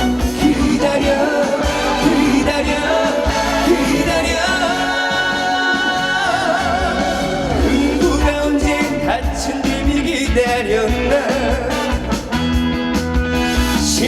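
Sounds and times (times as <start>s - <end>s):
trot song over loud speakers: 0.0s - 14.0s.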